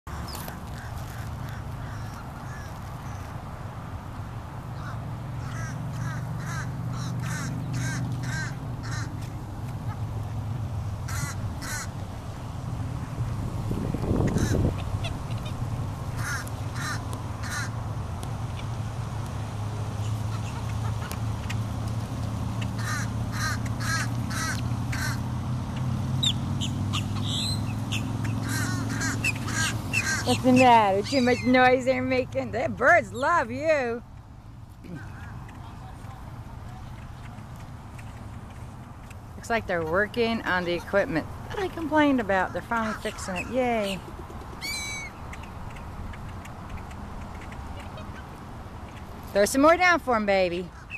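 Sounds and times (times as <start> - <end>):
bird harsh calls: 0.1 - 3.4, 4.7 - 9.2, 11.0 - 12.0, 14.1 - 17.8, 20.0 - 21.6, 22.6 - 25.3, 26.2 - 31.8, 42.4 - 49.1
crow cawing: 0.7 - 3.3, 4.8 - 9.2, 11.0 - 11.9, 14.3 - 14.6, 16.2 - 17.8, 22.8 - 25.3, 28.3 - 30.4.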